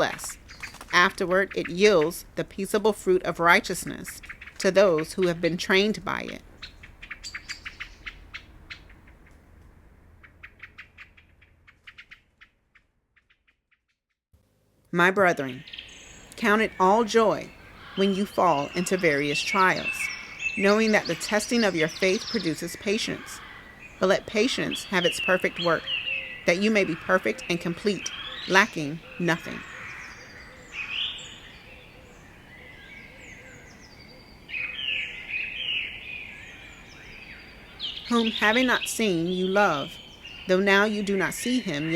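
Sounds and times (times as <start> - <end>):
small birds chirping: 0.0 - 9.4, 10.2 - 14.0, 15.0 - 41.9.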